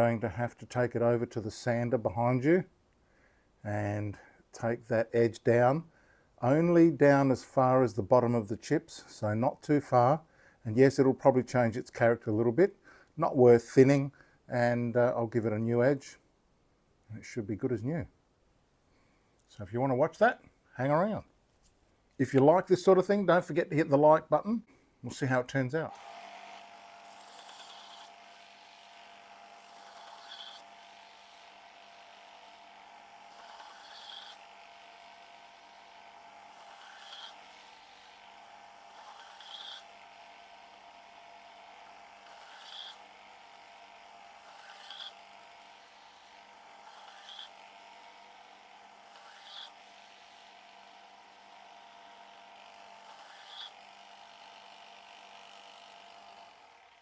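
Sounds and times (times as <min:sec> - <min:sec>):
sander motor humming: 0:25.2 - 0:57.0
knife grinding hiss: 0:27.1 - 0:28.1, 0:29.6 - 0:30.6, 0:33.3 - 0:34.4, 0:36.6 - 0:37.4, 0:42.4 - 0:43.0, 0:44.5 - 0:45.2, 0:49.1 - 0:49.7, 0:53.1 - 0:53.7.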